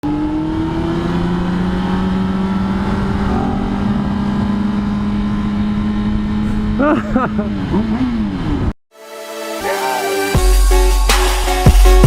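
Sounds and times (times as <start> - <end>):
motorcycle engine cruising: 0.0 - 8.8
wind rushing over microphone: 0.6 - 6.8.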